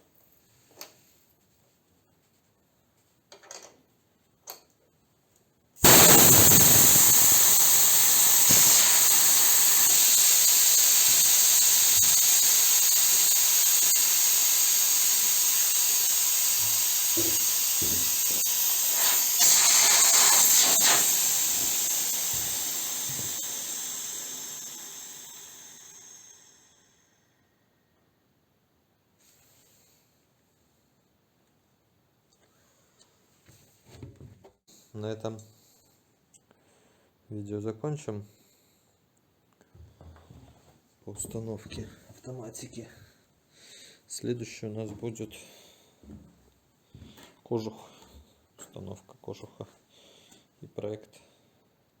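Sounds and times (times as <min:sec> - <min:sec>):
compressed air venting hiss: 0:05.8 - 0:27.1.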